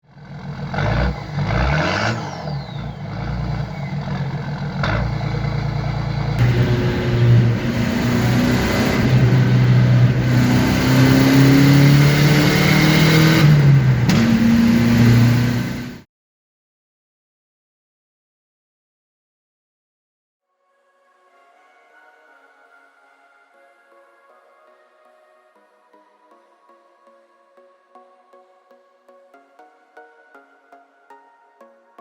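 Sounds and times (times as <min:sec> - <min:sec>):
vehicle engine revving: 0:00.1 - 0:16.0.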